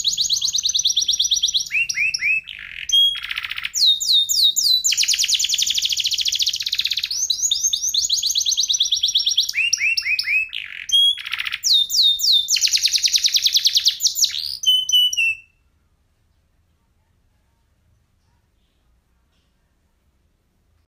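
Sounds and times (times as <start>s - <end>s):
canary singing trills: 0.0s - 15.7s.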